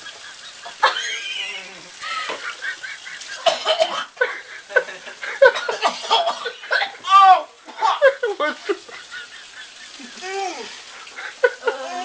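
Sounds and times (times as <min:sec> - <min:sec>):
people laughing: 0:00.0 - 0:12.0
people yelping: 0:06.8 - 0:08.3, 0:09.4 - 0:12.0.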